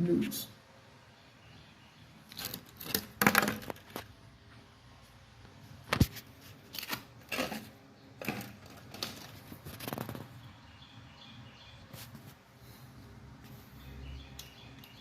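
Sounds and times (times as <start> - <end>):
soft clicks and rustles: 2.3 - 10.5.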